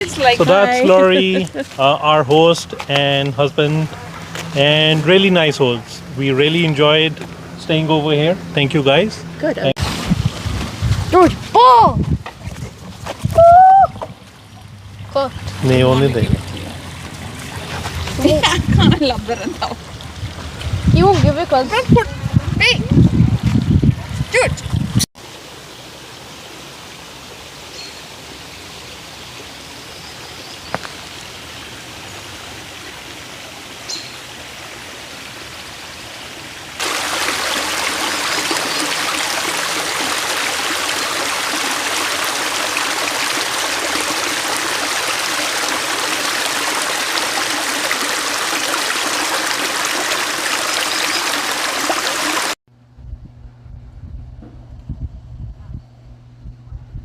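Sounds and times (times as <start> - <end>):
rushing water: 0.0 - 52.6.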